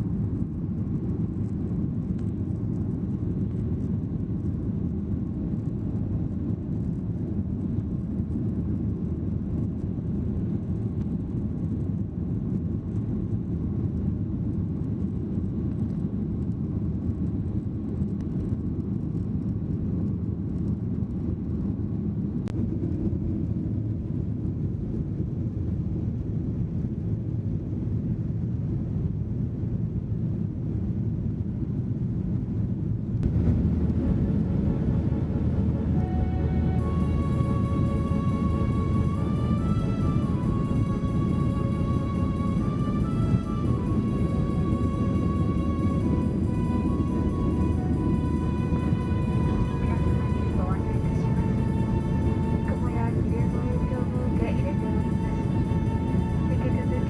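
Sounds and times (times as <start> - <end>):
jet engines and airflow rumble: 0.0 - 57.0
faint steady tone: 33.2 - 57.0.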